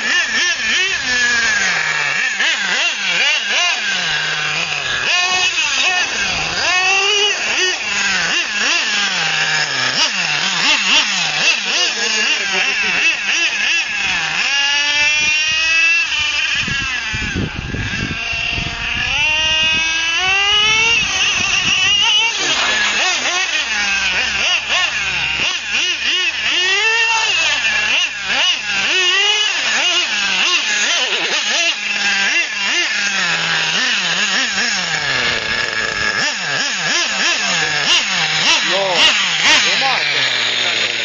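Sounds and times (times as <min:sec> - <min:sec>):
rc car nitro engine revving: 0:00.0 - 0:41.0.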